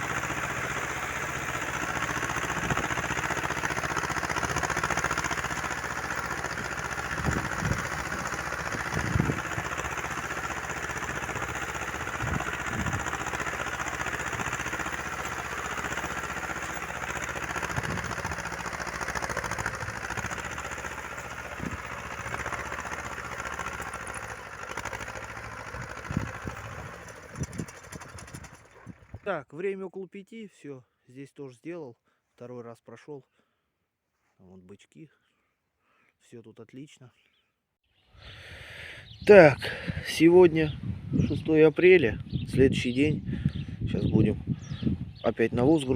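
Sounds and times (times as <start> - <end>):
tractor engine running: 0.0 - 29.3.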